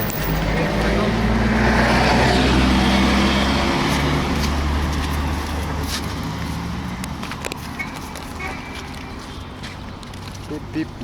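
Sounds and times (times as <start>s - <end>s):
vehicle engine passing by: 0.0s - 7.1s.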